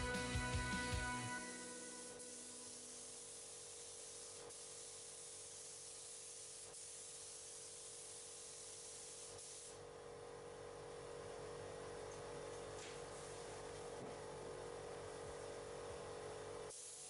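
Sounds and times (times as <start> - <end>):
spray gun hissing: 1.5 - 9.8, 16.7 - 17.0.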